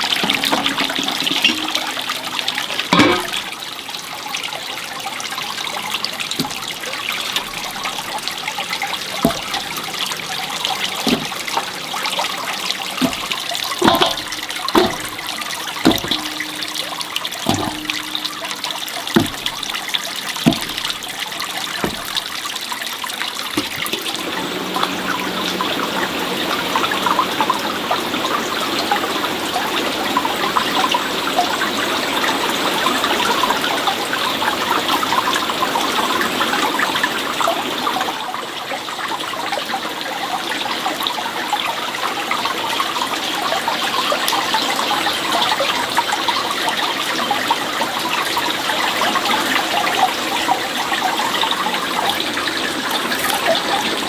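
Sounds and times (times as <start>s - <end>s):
running water trickling: 0.0s - 54.0s
light knocks: 11.0s - 11.6s, 13.0s - 19.8s, 20.4s - 21.2s, 21.8s - 22.3s.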